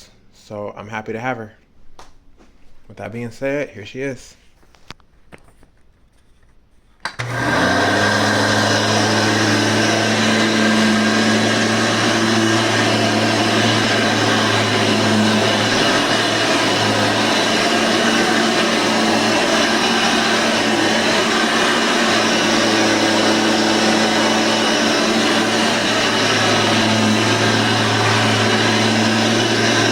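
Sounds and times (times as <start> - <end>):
vacuum cleaner motor running: 7.2 - 29.9.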